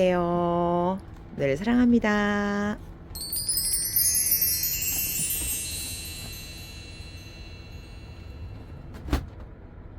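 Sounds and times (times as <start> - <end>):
low background rumble: 0.0 - 9.9
bell-like chimes ringing: 3.2 - 8.9.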